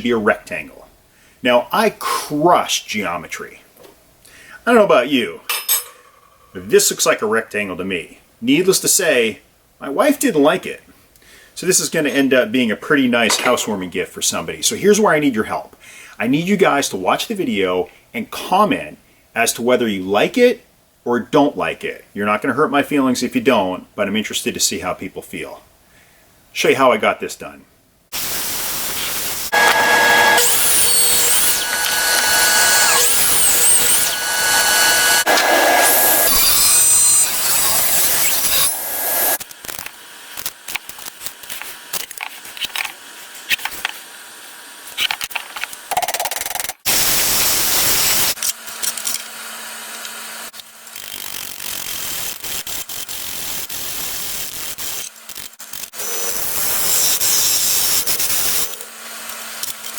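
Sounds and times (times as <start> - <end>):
power tool whining: 28.2 - 39.4, 55.7 - 58.9.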